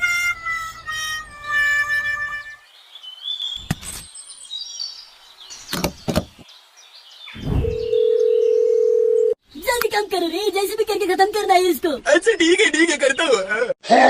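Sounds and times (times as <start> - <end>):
high bird chirps: 2.8 - 8.8.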